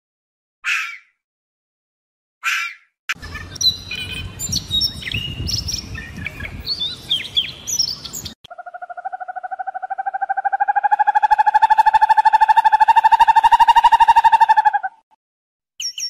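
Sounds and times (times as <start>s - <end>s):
small birds chirping and twittering: 2.4s - 14.7s, 15.8s - 16.0s
rapidly pulsing tone: 8.5s - 14.8s.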